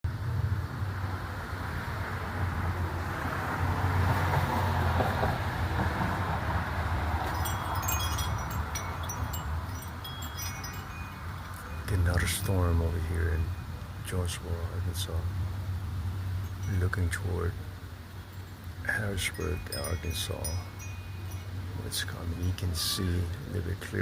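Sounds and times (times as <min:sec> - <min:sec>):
gusty wind rushing: 0:00.4 - 0:12.7
wind chimes ringing: 0:07.1 - 0:15.3, 0:16.0 - 0:24.0.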